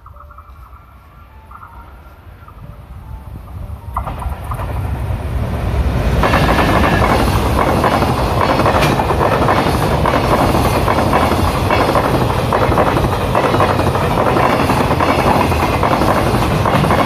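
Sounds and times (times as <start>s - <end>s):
freight train rushing past: 0.0s - 17.0s
wheels clicking on rails: 6.1s - 17.0s.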